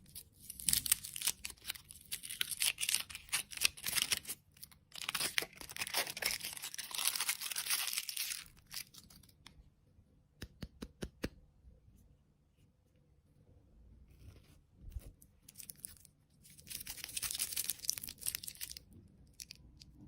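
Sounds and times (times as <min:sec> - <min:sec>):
plastic packaging crinkling: 0:00.5 - 0:09.4, 0:15.5 - 0:19.9.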